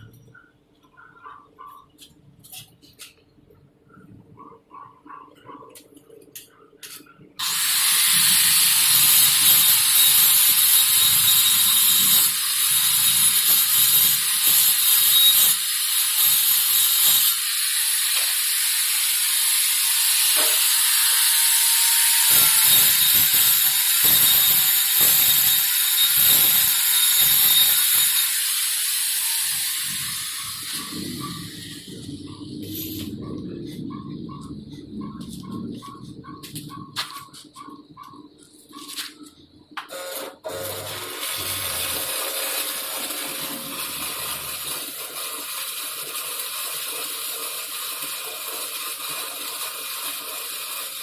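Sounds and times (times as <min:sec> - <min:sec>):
welding arc crackling and hissing: 0:06.9 - 0:33.8, 0:40.8 - 0:51.0.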